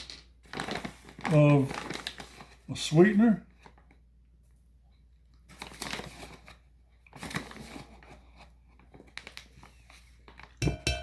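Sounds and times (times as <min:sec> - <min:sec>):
crinkly rustling: 0:00.0 - 0:04.0, 0:05.3 - 0:10.7.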